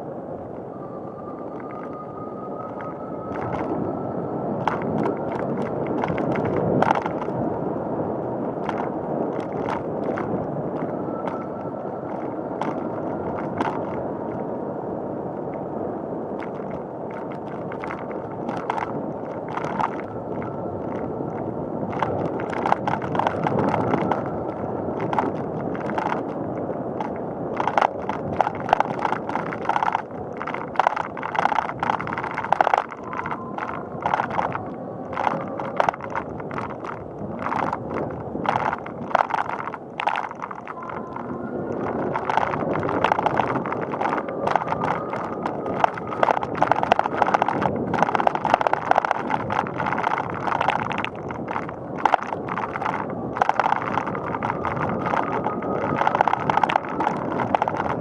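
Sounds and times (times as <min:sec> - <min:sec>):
bike clicks and rattles: 0:04.6 - 0:07.4, 0:08.6 - 0:14.4, 0:16.4 - 0:58.0
bicycle tyre rush: 0:16.4 - 0:58.0.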